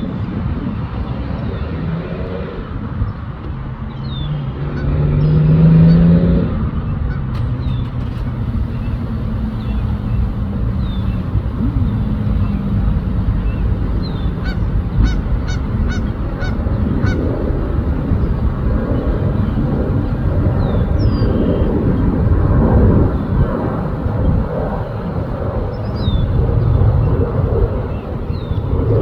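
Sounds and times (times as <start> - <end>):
low background rumble: 6.4 - 29.0
geese honking: 7.9 - 21.8.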